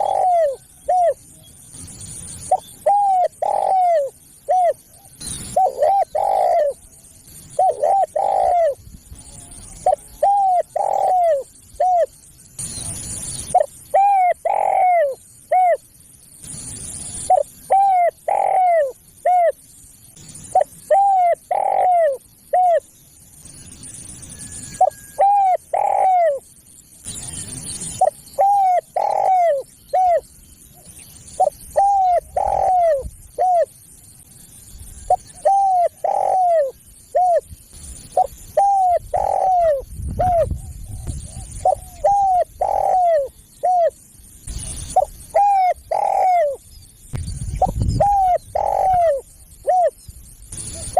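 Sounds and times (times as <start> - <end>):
dove cooing: 0.0 - 1.4, 2.4 - 12.2, 13.5 - 15.9, 17.2 - 19.6, 20.4 - 22.9, 24.8 - 26.5, 27.9 - 33.8, 35.1 - 37.5, 38.1 - 46.6, 47.6 - 50.0.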